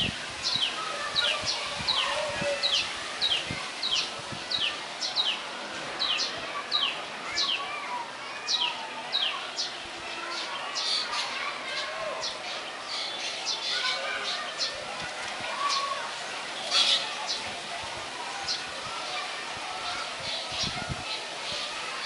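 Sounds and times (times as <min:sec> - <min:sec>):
faint bird sounds: 0:00.4 - 0:17.6.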